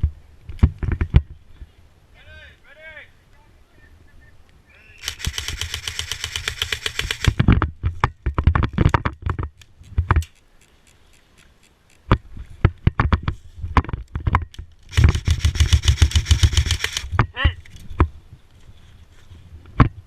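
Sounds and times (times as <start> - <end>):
airsoft gun firing: 5.0 - 7.4, 14.9 - 17.1.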